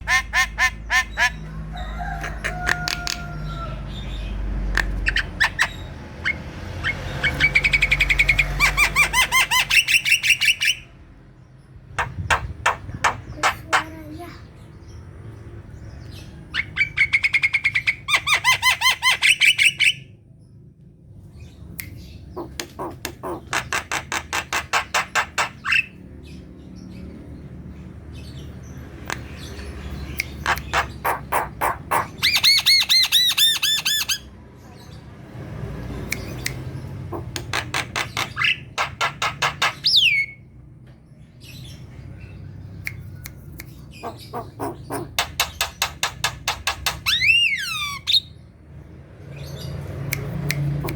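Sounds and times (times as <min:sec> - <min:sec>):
bird rattling and chattering: 0:22.4 - 0:25.7, 0:37.0 - 0:40.0, 0:44.0 - 0:47.4.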